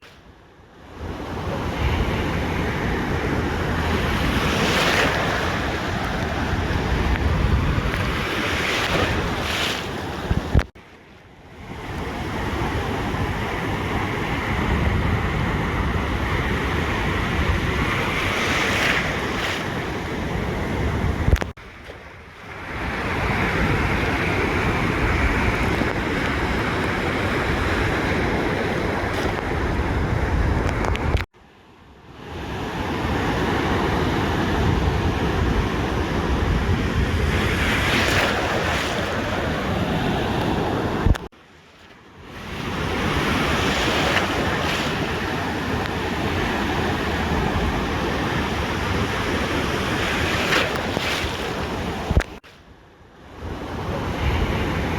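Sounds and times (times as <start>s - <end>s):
ocean surf on beach: 0.0s - 54.9s
wind buffeting microphone: 1.0s - 10.7s, 11.7s - 21.6s, 22.5s - 31.3s, 33.9s - 41.3s
click: 21.3s - 21.5s, 30.6s - 31.3s, 41.1s - 42.0s.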